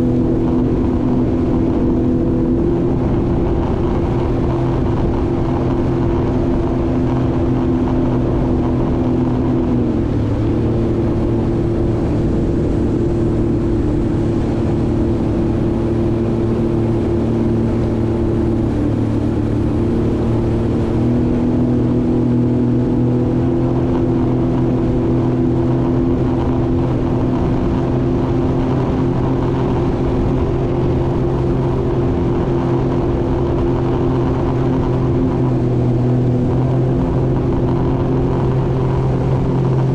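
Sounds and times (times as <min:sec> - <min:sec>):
jet ski engine running: 0:00.0 - 0:39.9.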